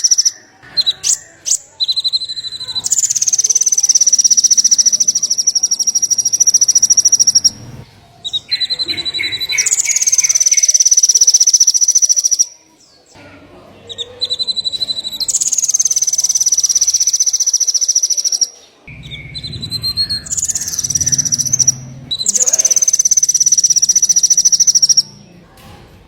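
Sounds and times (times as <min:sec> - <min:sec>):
songbird rapid trill: 0:00.0 - 0:12.6, 0:13.9 - 0:25.4
low hum: 0:06.3 - 0:07.8, 0:18.9 - 0:25.6.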